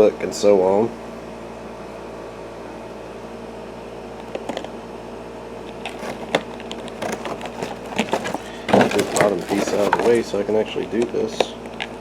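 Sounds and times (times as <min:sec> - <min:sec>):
machine hum: 0:05.6 - 0:10.4
plastic parts clicking: 0:05.9 - 0:10.3.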